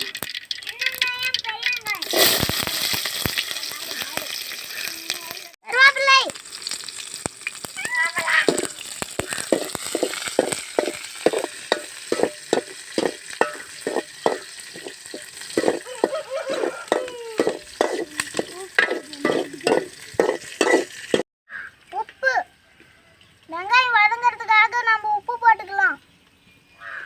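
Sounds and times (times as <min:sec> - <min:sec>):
onions sizzling in hot oil: 0:00.0 - 0:21.2
spoon scraping a pan: 0:08.4 - 0:21.2.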